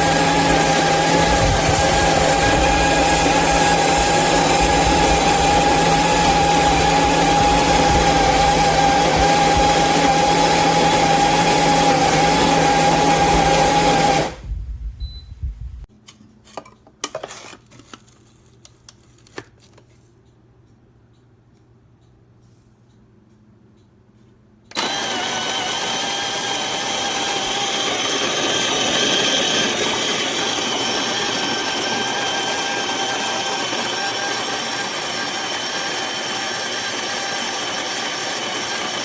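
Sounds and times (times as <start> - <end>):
coffee grinder motor whining: 0.0 - 14.4, 24.7 - 39.0.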